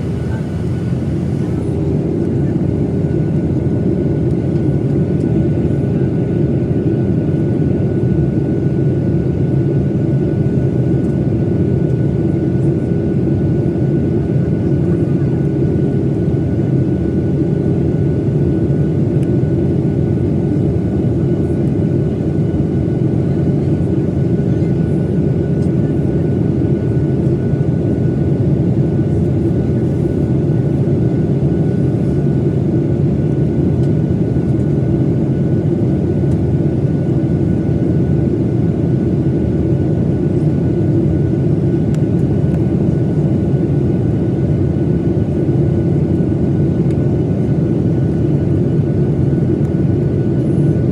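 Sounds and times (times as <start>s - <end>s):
air rushing over fuselage: 0.0s - 1.7s
jet engine drone: 0.0s - 50.9s.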